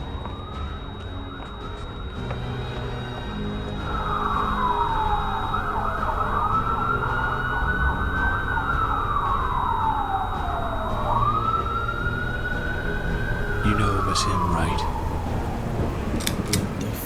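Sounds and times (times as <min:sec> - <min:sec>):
emergency vehicle siren wailing: 0:00.0 - 0:17.0.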